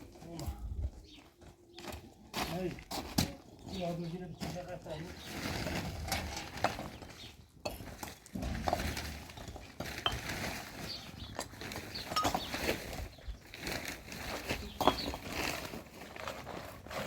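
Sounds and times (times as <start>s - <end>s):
clinks and knocks of hard objects: 5.2s - 13.1s, 14.5s - 15.9s.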